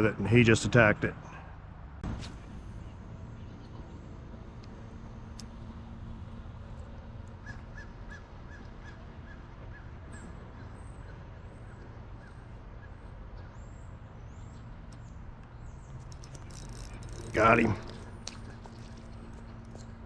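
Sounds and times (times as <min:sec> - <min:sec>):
low outdoor background noise: 0:00.0 - 0:20.0
faint bird calls: 0:07.2 - 0:19.4.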